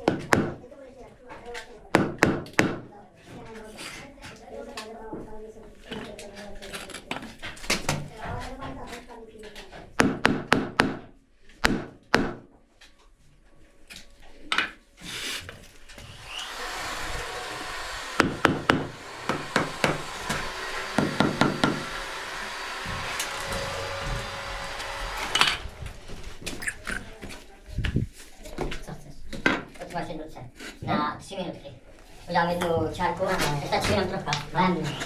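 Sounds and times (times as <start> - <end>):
hand tools knocking on wood: 0.0 - 0.6, 1.9 - 2.9, 10.0 - 12.5, 16.0 - 26.0.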